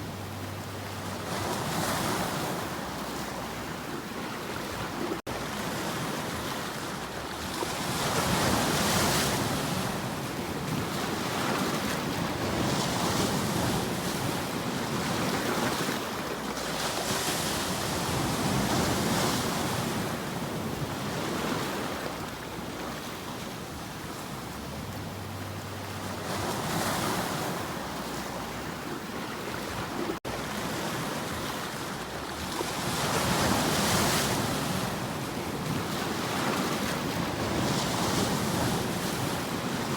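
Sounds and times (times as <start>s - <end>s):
sea waves washing onto shore: 25.9s - 39.9s.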